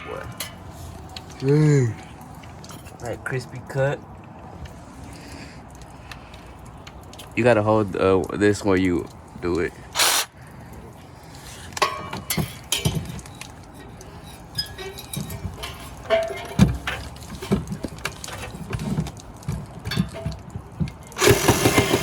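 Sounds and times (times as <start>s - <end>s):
power cutting tool running: 10.0s - 10.3s.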